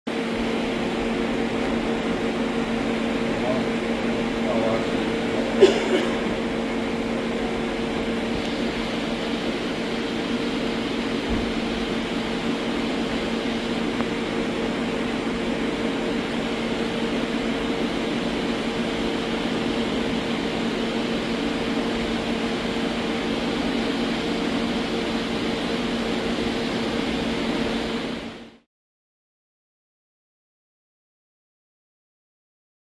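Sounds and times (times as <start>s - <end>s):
lathe mechanical hum: 0.1s - 28.6s.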